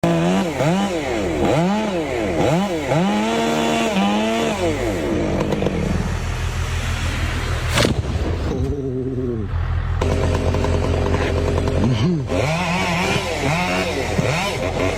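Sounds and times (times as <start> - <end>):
chainsaw engine revving: 0.0 - 6.2, 9.5 - 14.9.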